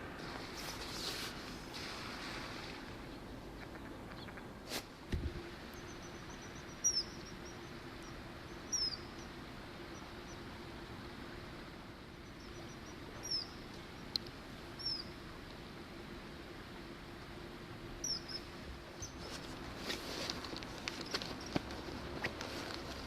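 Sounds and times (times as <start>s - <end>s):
low hum and hiss: 0.0s - 23.0s
kingfisher whistled calls: 5.8s - 9.3s, 12.4s - 13.6s, 14.8s - 15.1s, 18.0s - 19.2s.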